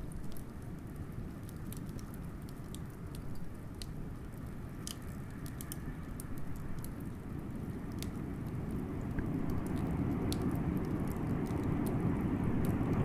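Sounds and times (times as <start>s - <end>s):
wood fire crackling and popping: 0.0s - 13.0s
blizzard wind rumble: 6.9s - 13.0s.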